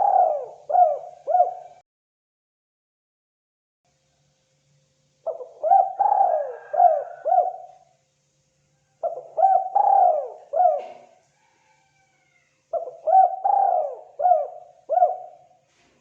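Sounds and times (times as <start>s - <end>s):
dove cooing: 0.0s - 1.8s, 5.2s - 7.9s, 9.0s - 15.6s.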